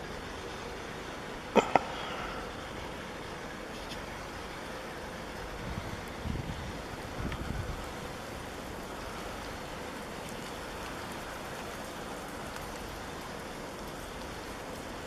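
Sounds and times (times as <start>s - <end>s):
snowstorm wind and blowing snow: 5.0s - 15.0s
faint ticks: 8.6s - 15.0s.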